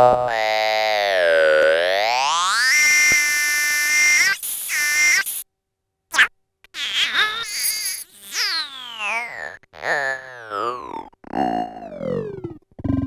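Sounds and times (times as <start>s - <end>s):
buzzy synthesizer tone: 8.6s - 13.0s.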